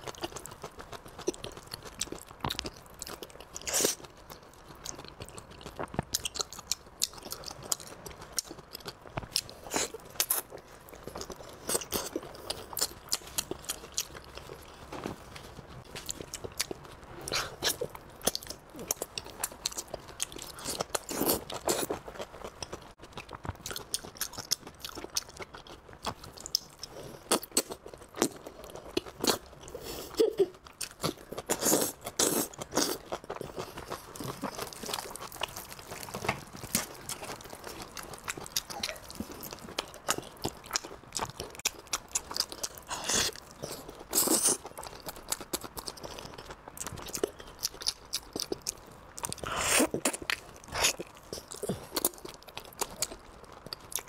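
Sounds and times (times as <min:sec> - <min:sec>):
biting and chewing: 0:30.7 - 0:54.0.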